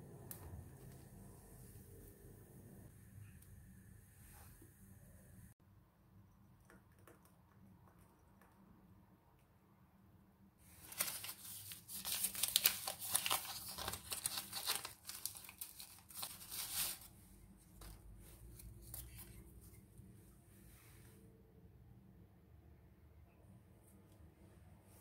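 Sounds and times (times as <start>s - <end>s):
faint handling sounds: 10.6s - 21.4s
packaging torn and crinkled: 10.8s - 17.1s.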